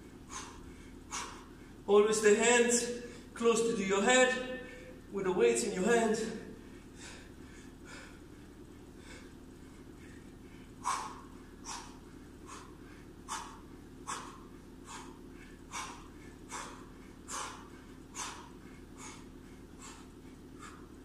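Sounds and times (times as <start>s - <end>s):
man exhaling forcefully: 0.3s - 1.8s, 9.0s - 21.0s.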